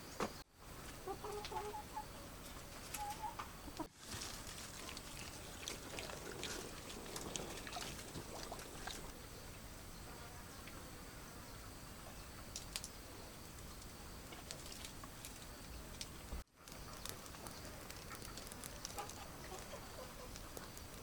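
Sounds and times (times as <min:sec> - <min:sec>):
faint poultry clucking: 0:00.9 - 0:03.9
rustling: 0:03.8 - 0:09.1, 0:14.3 - 0:21.0.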